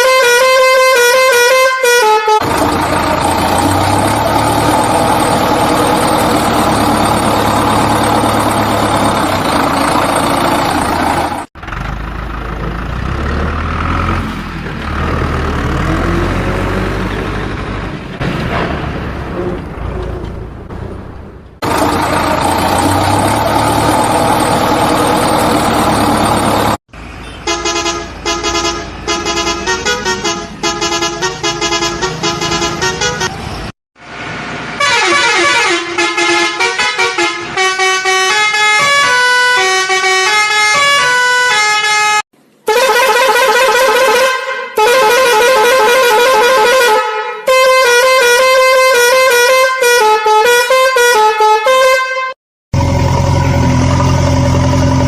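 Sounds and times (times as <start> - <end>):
musical vehicle horn melodies: 0.0 - 3.1, 26.6 - 33.4, 34.8 - 52.4.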